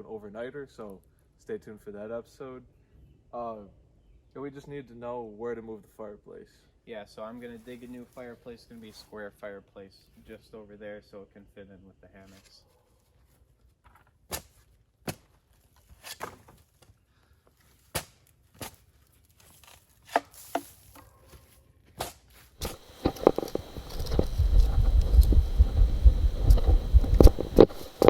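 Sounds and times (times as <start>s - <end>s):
spade digging into soil: 19.6s - 21.1s
loud low rumble: 22.9s - 27.8s.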